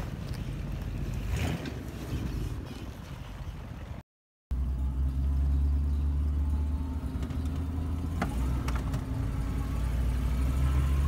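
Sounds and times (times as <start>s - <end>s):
engine running at low revs: 4.5s - 11.0s.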